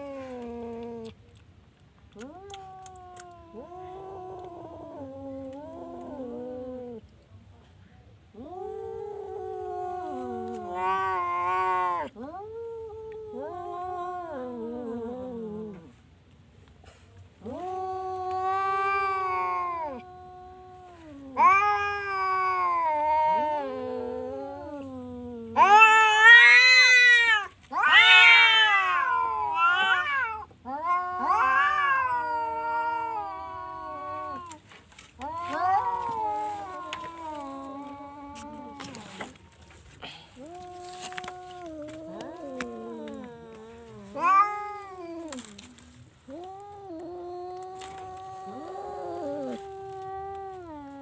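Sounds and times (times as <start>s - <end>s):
cat meowing: 21.0s - 24.9s, 25.5s - 34.6s, 35.2s - 39.4s, 40.4s - 45.7s.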